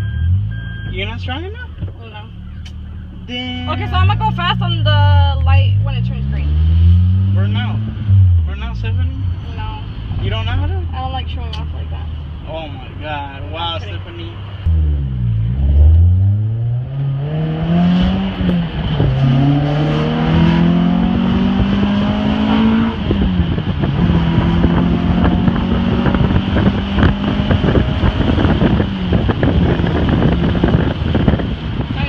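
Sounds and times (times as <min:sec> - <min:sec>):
car engine accelerating: 0:00.0 - 0:32.0
wind buffeting microphone: 0:17.8 - 0:32.0.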